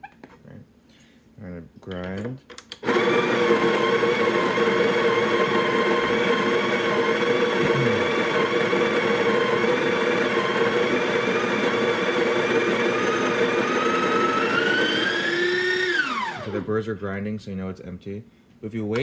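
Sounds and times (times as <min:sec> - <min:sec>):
coffee grinder grinding beans: 0:02.8 - 0:16.8.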